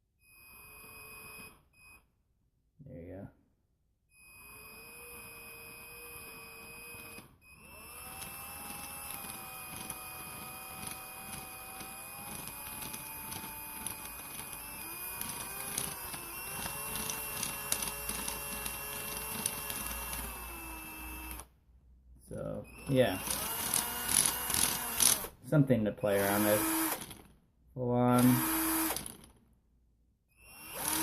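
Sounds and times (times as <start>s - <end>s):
electric drill motor whining: 0.3s - 1.7s, 4.2s - 21.6s, 22.7s - 25.4s, 26.0s - 27.3s, 28.0s - 29.4s, 30.3s - 31.0s
plastic gears clicking: 7.9s - 21.4s, 23.2s - 25.4s, 26.2s - 27.4s, 28.2s - 29.4s.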